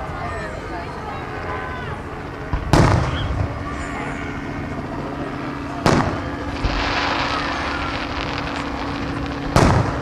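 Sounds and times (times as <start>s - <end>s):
fireworks shell booming: 5.8s - 10.0s
firework burst hissing: 6.6s - 10.0s.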